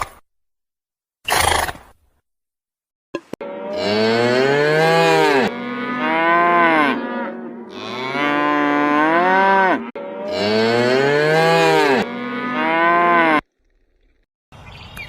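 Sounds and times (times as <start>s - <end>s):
cattle mooing: 3.4s - 13.5s.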